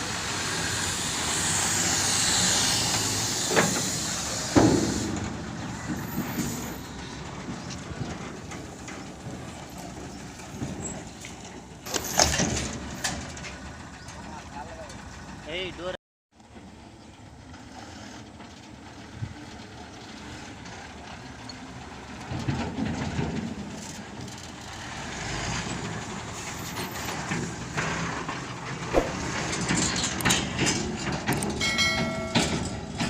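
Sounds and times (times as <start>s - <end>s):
heavy diesel machinery running: 0.0s - 33.0s
metal clanks and knocks: 3.5s - 15.1s, 26.6s - 33.0s.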